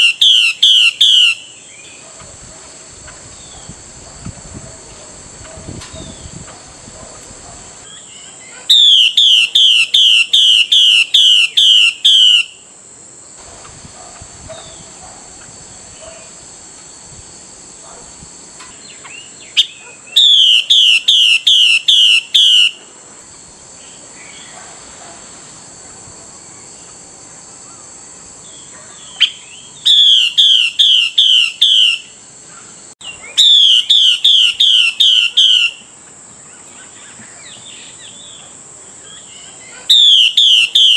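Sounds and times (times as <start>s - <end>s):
bird whistled calls: 0.0s - 2.0s, 7.8s - 12.6s, 18.9s - 22.8s, 29.0s - 32.2s, 33.0s - 35.8s, 39.1s - 40.9s
steady high hiss: 0.0s - 40.9s.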